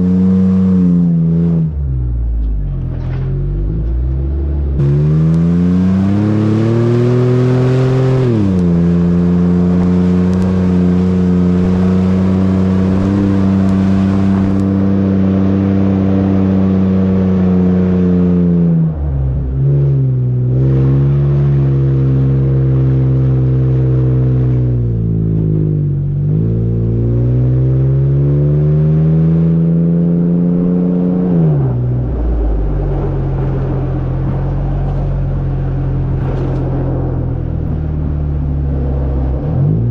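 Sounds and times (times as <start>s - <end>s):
car engine revving through exhaust: 0.0s - 39.9s.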